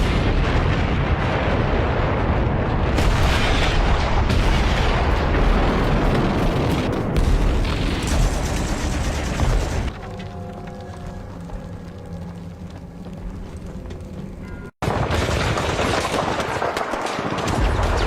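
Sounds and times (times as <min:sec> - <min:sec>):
sharp explosion blasts: 0:00.0 - 0:09.9
continuous low rumble: 0:08.1 - 0:14.7.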